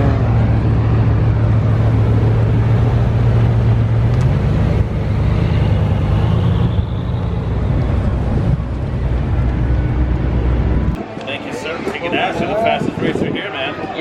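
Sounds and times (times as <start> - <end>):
car engine exhaust drone: 0.0 - 11.0.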